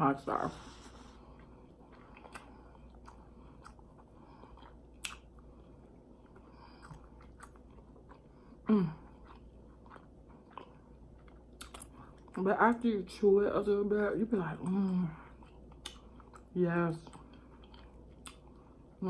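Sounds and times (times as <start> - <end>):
person chewing: 0.6 - 12.4, 14.6 - 19.0.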